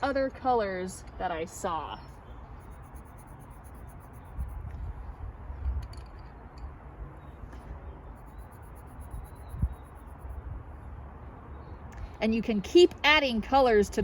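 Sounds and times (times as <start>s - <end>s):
pencil scratching on paper: 2.6s - 4.6s, 8.2s - 10.3s
wind rumble on microphone: 2.6s - 11.0s.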